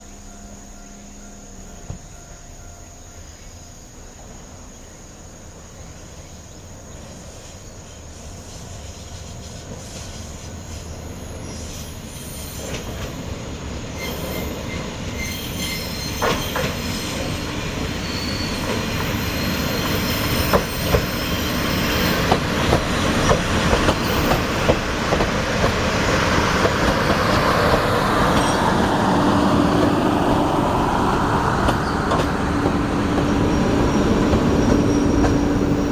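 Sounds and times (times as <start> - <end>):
diesel engines droning: 16.2 - 35.9
wheels clicking over rail joints: 18.5 - 35.9.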